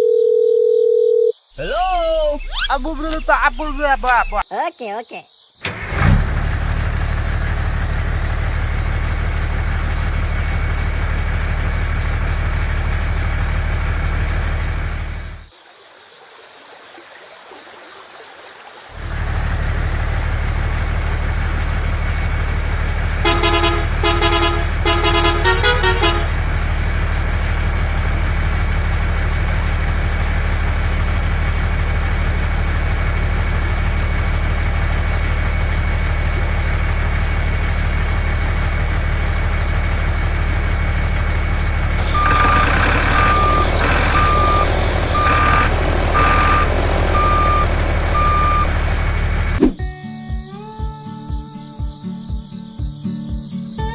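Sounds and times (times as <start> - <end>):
truck engine running: 1.6 - 4.4, 5.6 - 15.5, 19.0 - 49.8
horn toots: 23.0 - 26.9, 41.9 - 49.0
reversing beeps: 42.0 - 48.8.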